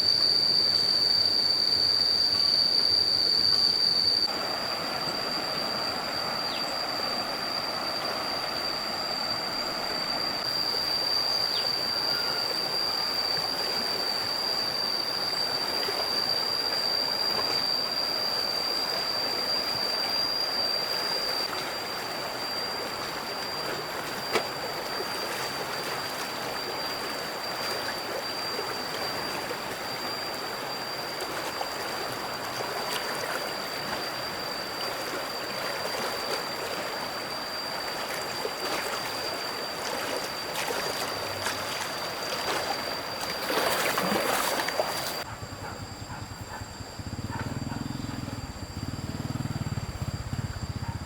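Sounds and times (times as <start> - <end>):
thin high steady tone: 0.0 - 45.4
flowing water rushing: 4.2 - 45.3.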